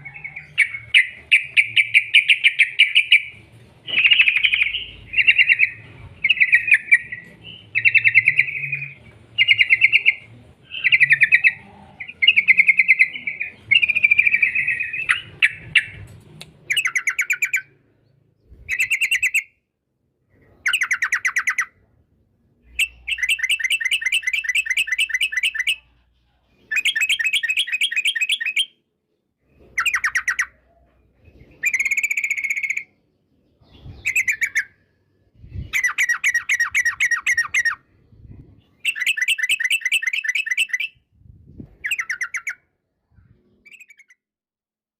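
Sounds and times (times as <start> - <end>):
bird chattering trilled song: 0.0 - 16.0, 16.7 - 17.8, 18.6 - 19.6, 20.6 - 21.8, 22.7 - 26.0, 26.6 - 28.8, 29.7 - 30.8, 31.4 - 33.0, 33.6 - 34.8, 35.4 - 37.9, 38.6 - 41.0, 41.8 - 42.7, 43.6 - 44.2.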